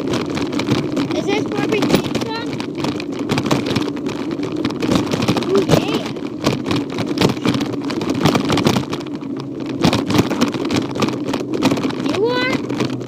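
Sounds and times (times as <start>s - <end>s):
bike rolling rumble with rattling: 0.0s - 13.0s.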